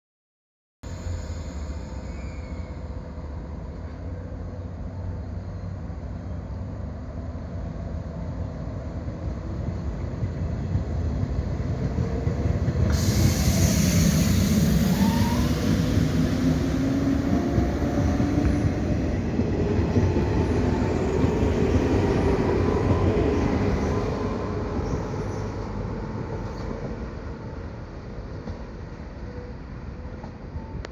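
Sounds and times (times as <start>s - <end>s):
train rumble: 0.9s - 30.9s
hiss: 12.9s - 18.0s.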